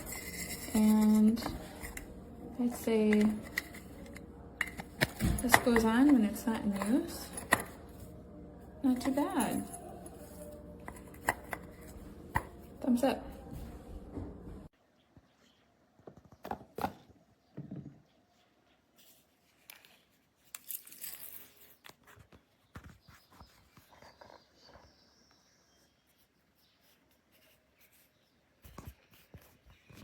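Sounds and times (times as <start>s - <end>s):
handling clicks and rustles: 0.0s - 8.2s.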